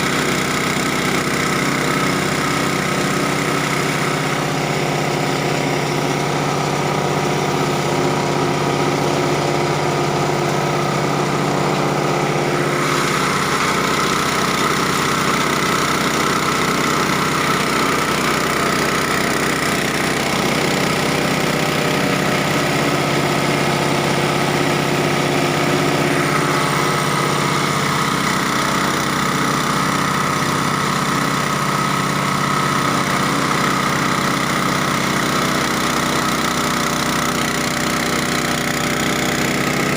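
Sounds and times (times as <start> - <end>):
engine-driven grinder running: 0.0 - 39.9.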